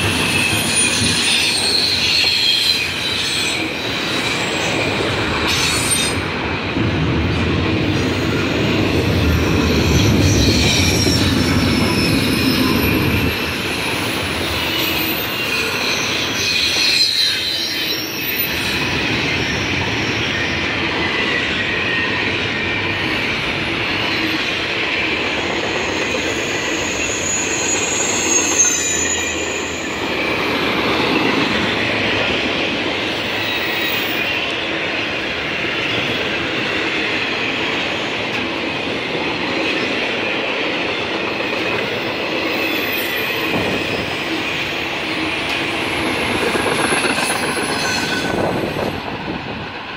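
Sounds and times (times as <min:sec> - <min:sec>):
train wheels rumbling on rail: 0:00.0 - 0:49.9
high wavering wheel squeal: 0:10.0 - 0:20.7, 0:25.7 - 0:30.6, 0:42.4 - 0:48.9.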